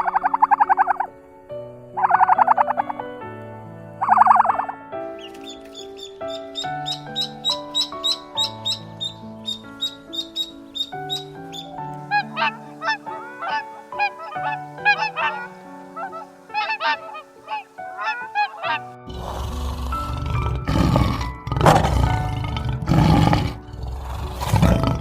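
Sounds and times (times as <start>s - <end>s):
birds honking: 0.0s - 3.2s, 3.9s - 22.5s
background music: 0.0s - 25.0s
large animal roaring: 19.1s - 25.0s.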